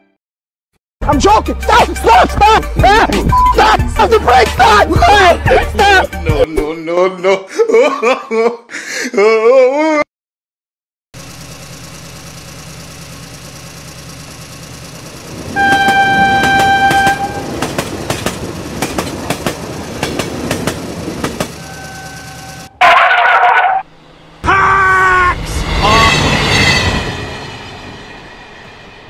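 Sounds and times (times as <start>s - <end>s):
low engine hum: 11.2s - 22.7s
train wagons clickety-clack: 15.3s - 22.7s
train horn blast: 15.5s - 17.6s, 21.6s - 23.0s
loud wavering cry: 24.4s - 26.4s.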